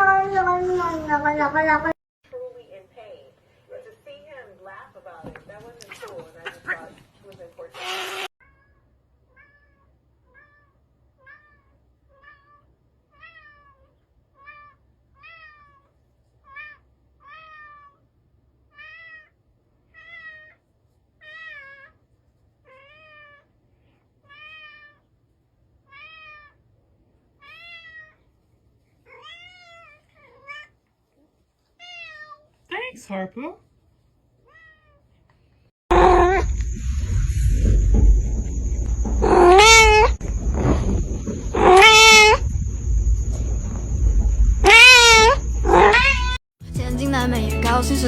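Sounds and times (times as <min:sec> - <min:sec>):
cat meowing: 0:07.8 - 0:18.0, 0:18.7 - 0:20.6, 0:21.2 - 0:22.0, 0:25.9 - 0:26.6, 0:27.4 - 0:28.2, 0:29.0 - 0:30.8, 0:31.8 - 0:32.5, 0:34.5 - 0:35.0, 0:44.6 - 0:46.4.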